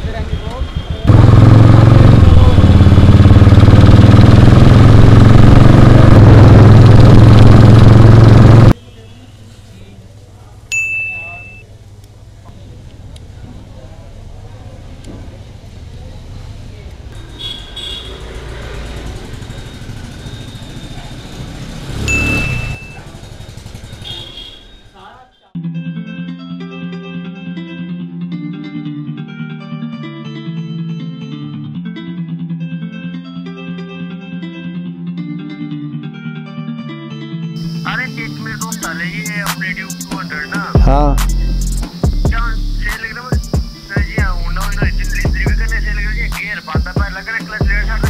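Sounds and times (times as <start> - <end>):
motorcycle engine running: 0.0 - 8.8, 15.7 - 24.5
short high beep: 22.1 - 23.1.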